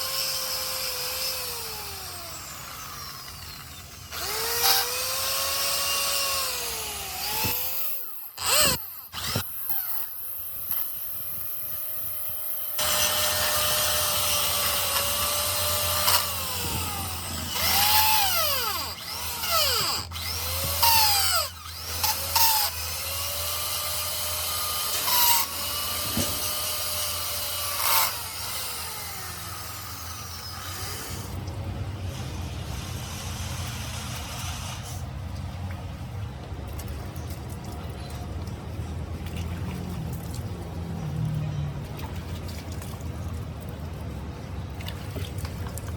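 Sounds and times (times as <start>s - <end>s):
power tool motor whirring: 0.0s - 35.1s.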